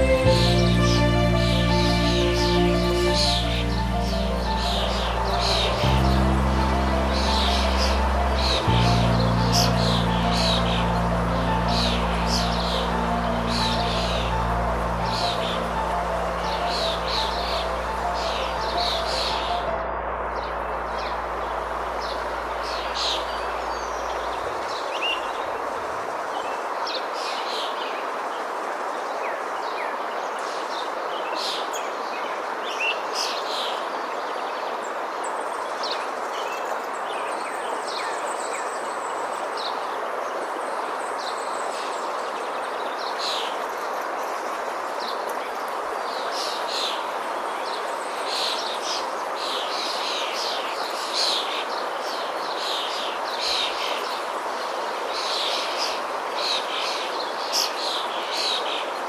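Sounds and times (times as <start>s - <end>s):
birds chirping: 0.0s - 25.6s
steady rushing noise: 0.0s - 26.8s.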